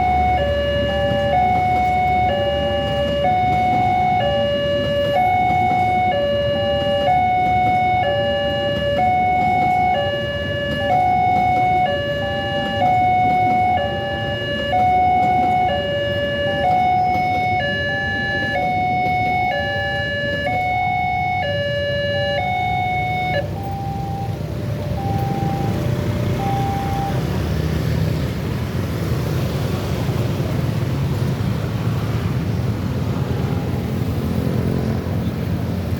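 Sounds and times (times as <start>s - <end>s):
level crossing two-tone alarm: 0.0s - 27.2s
passing train rumble: 0.0s - 35.9s.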